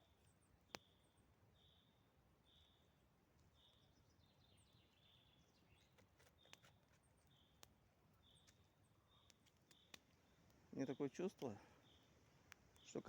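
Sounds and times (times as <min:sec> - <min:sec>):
bird chirping: 0:00.0 - 0:07.6, 0:08.2 - 0:13.0
faint clicks: 0:08.4 - 0:10.6.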